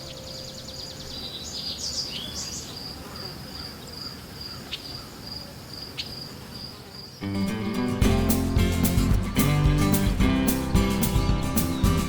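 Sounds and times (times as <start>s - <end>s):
crickets chirping: 0.0s - 7.2s.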